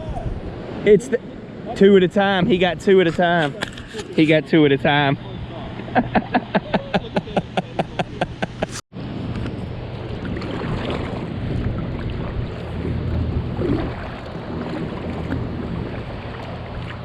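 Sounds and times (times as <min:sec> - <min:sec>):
gusty wind buffeting microphone: 0:00.0 - 0:03.9, 0:08.5 - 0:17.0.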